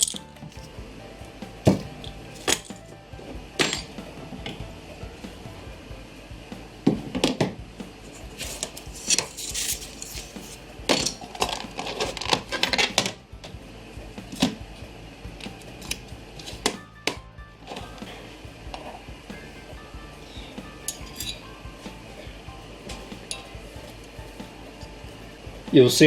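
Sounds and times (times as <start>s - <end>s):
metal tools clinking and clattering: 0.0s - 0.7s, 1.7s - 2.8s, 3.6s - 4.0s, 8.4s - 13.2s, 20.9s - 21.4s, 22.9s - 23.6s.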